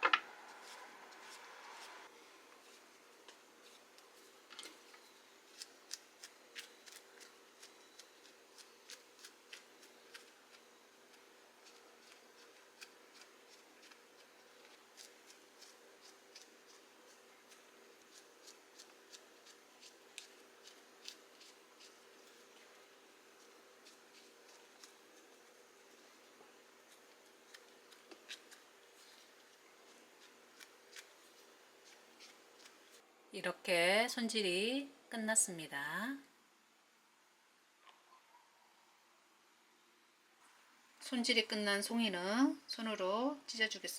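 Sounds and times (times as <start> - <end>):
knife scraping mushroom: 2.6 - 33.0.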